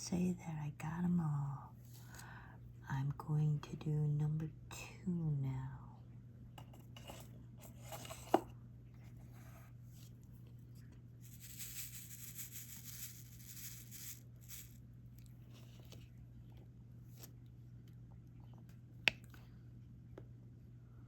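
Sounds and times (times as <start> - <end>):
low electrical hum: 0.0 - 21.0
soft rustling and scratching: 8.9 - 17.5.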